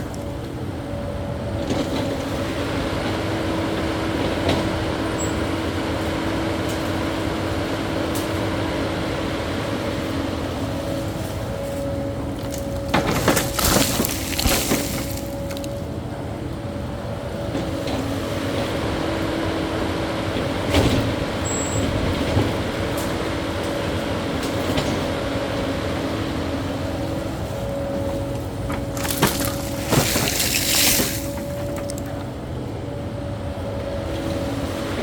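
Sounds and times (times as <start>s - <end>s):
excavator engine and hydraulics whine: 0.0s - 35.0s.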